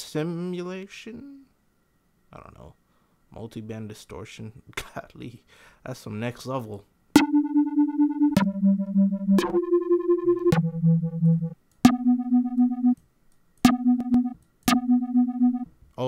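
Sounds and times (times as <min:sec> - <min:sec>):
synthesizer low held notes: 0:07.2 - 0:13.0, 0:13.7 - 0:15.7.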